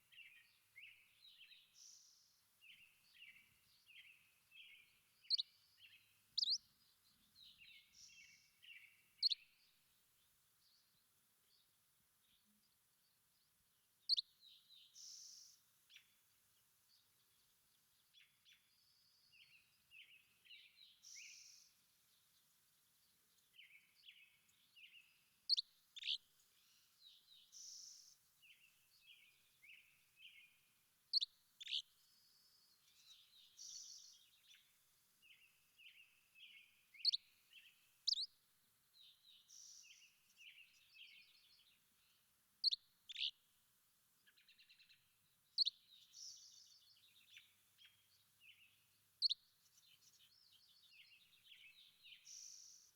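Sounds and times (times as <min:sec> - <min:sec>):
birds twittering: 0:02.7 - 0:06.6, 0:35.2 - 0:38.3, 0:42.6 - 0:43.3
high bird chirps: 0:38.1 - 0:38.3, 0:42.6 - 0:43.3.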